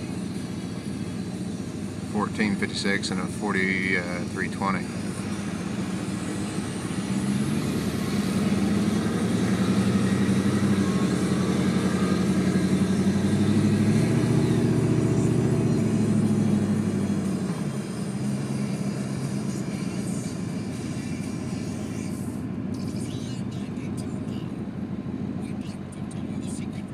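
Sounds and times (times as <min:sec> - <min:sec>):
tractor engines running flat out: 0:00.0 - 0:23.4.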